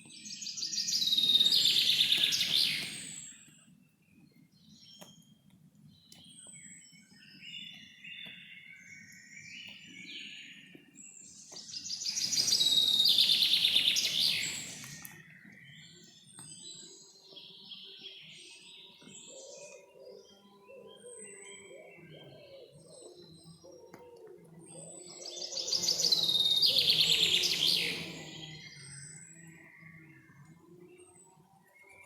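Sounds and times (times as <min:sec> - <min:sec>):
birds singing and chirping: 0:00.0 - 0:05.3, 0:05.9 - 0:32.0
loud rapid trilling birdsong: 0:11.8 - 0:15.2, 0:25.2 - 0:30.0.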